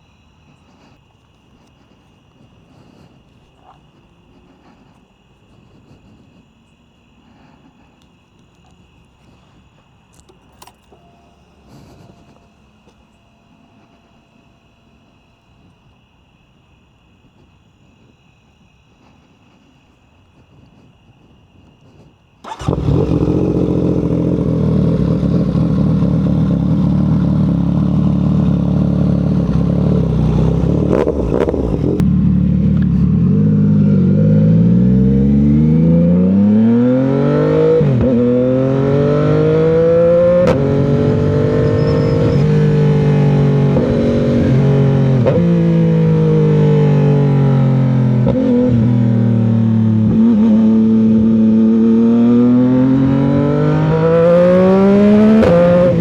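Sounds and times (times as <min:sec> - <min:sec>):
clicks: 0:10.1 - 0:13.0
motorcycle engine revving: 0:22.4 - 0:56.0.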